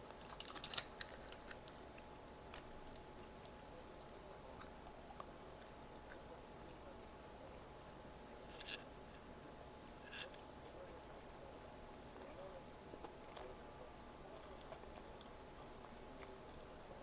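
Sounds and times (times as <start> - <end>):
food crunching: 0.1 - 6.5, 11.9 - 13.6, 14.3 - 17.0
person chewing food: 14.3 - 17.0.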